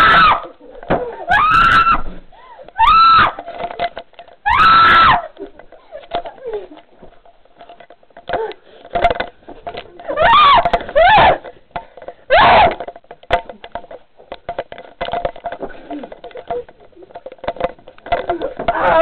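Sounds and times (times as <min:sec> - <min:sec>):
person screaming: 0:18.7 - 0:19.0.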